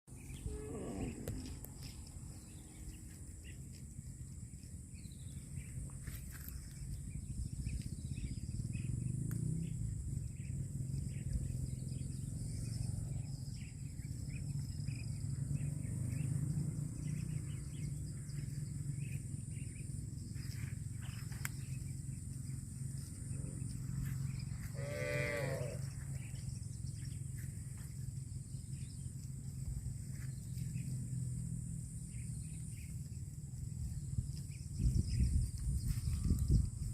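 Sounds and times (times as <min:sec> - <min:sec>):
cattle mooing: 0:00.4 - 0:01.5, 0:24.6 - 0:25.9.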